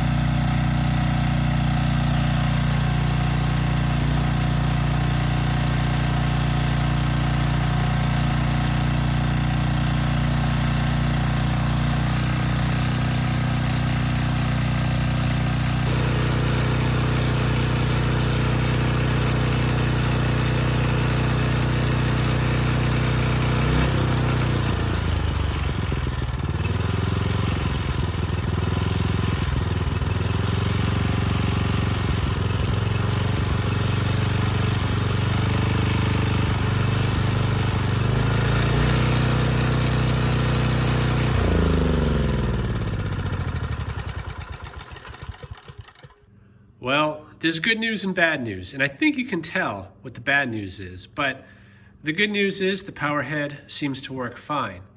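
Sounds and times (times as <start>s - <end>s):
generator engine running: 0.0s - 46.4s
engine knocking: 15.9s - 37.4s, 38.0s - 46.2s.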